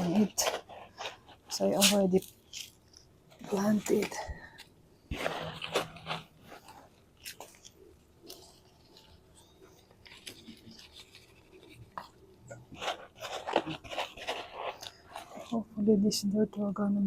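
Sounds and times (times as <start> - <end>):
soil scraping and rustling: 12.6 - 15.8.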